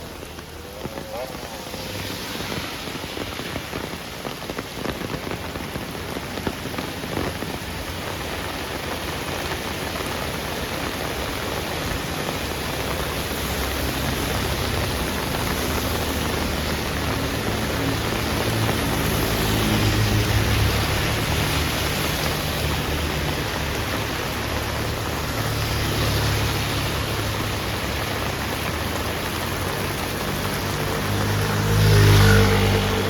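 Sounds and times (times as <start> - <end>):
heavy rain on a street: 0.0 - 33.0.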